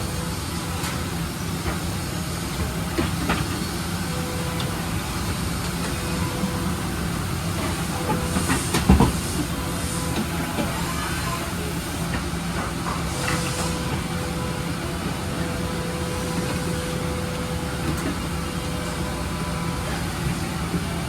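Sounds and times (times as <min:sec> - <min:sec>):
machine hiss: 0:00.1 - 0:21.0.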